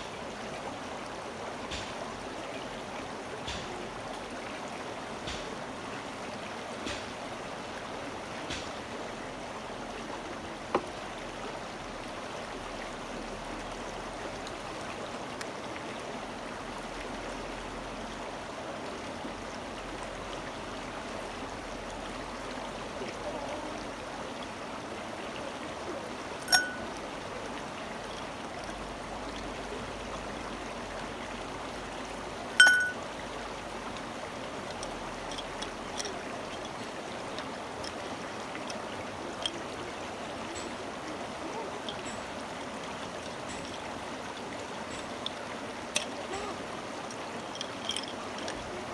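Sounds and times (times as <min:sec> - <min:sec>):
running stream: 0:00.0 - 0:48.9
sharp ringing clinks: 0:26.4 - 0:27.0, 0:32.6 - 0:33.0.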